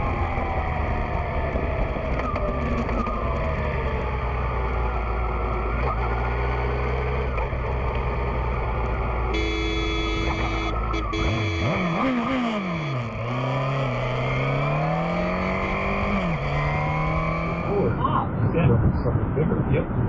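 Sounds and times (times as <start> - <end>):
car engine and road noise: 0.0 - 20.0
steady tone: 9.3 - 13.4.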